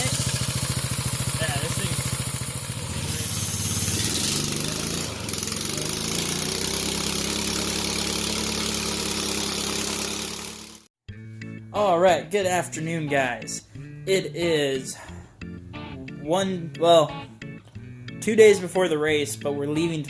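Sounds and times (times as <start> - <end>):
small bike engine running: 0.0 - 10.9.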